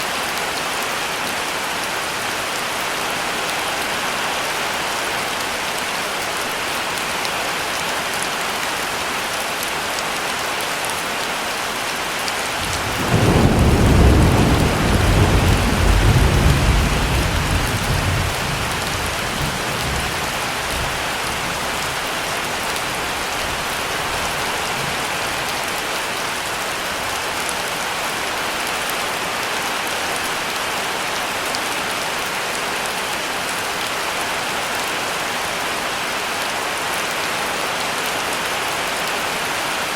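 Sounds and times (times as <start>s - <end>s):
heavy rain: 0.0s - 39.9s
thunder rumbling: 12.6s - 21.0s.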